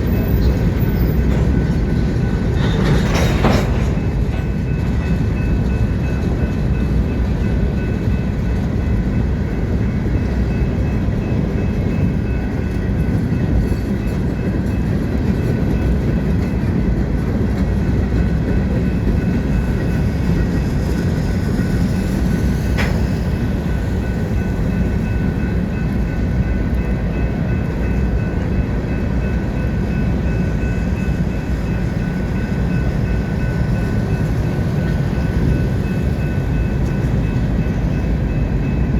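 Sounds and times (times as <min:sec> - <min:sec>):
wheel clickety-clack: 0:00.0 - 0:06.7, 0:13.0 - 0:26.0
freight train rumbling past: 0:00.0 - 0:38.9.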